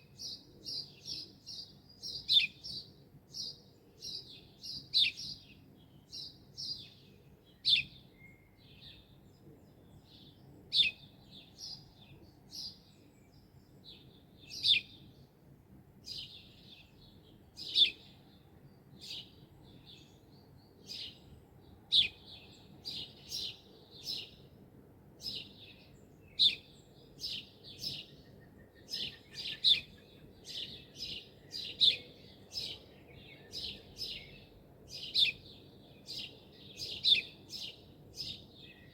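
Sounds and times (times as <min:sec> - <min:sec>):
small birds chirping: 0:00.0 - 0:15.4, 0:16.0 - 0:38.9.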